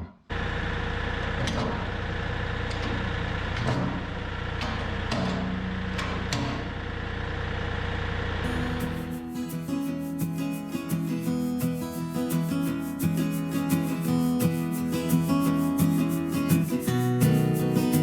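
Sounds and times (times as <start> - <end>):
diesel tractor engine idling: 0.3 - 9.4.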